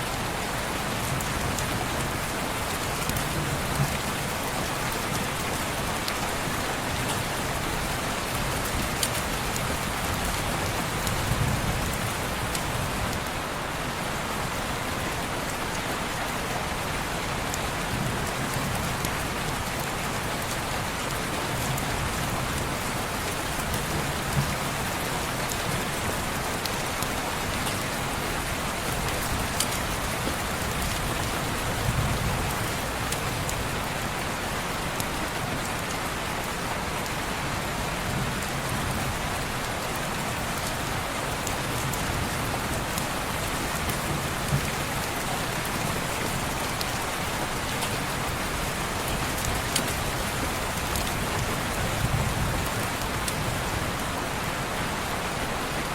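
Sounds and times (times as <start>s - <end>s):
sharp ticks of raindrops: 0.1s - 55.9s
rain on window glass: 38.2s - 55.7s.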